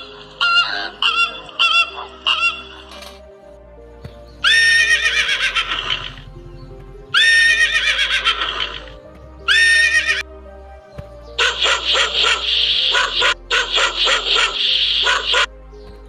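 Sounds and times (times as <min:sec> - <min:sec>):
horses whinnying: 0:00.0 - 0:03.2, 0:04.4 - 0:06.4, 0:07.1 - 0:10.3
background music with low notes: 0:00.0 - 0:16.0.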